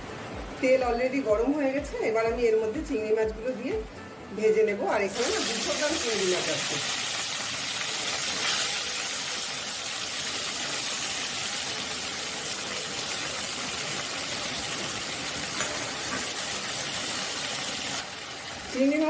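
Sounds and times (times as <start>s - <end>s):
prawns sizzling in a wok: 4.9s - 19.0s.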